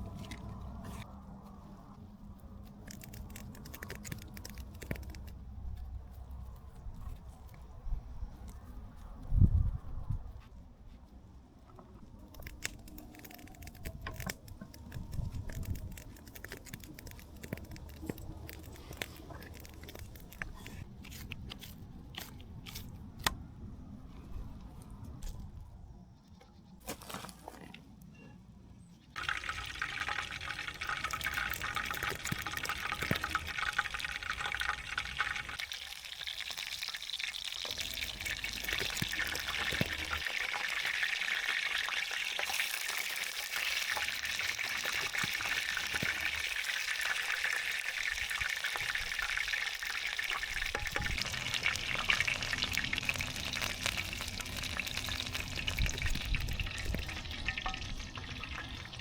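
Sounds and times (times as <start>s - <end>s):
food sizzling in hot oil: 29.2s - 59.0s.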